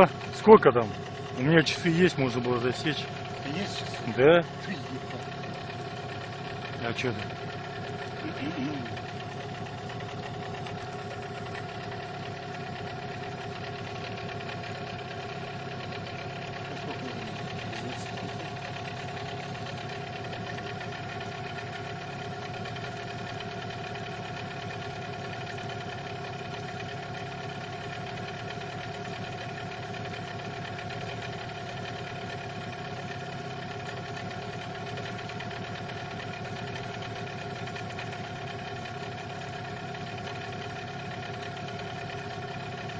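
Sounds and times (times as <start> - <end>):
outboard boat motor running: 0.0 - 42.9.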